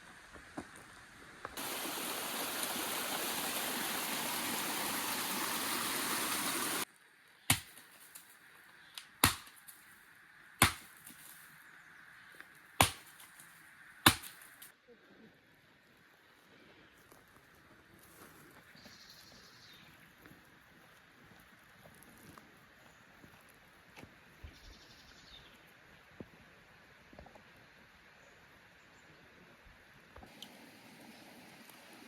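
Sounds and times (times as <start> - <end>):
running water rushing: 1.6 - 6.9, 30.2 - 32.0
knife chopping on cutting board: 9.2 - 9.5, 10.6 - 10.9.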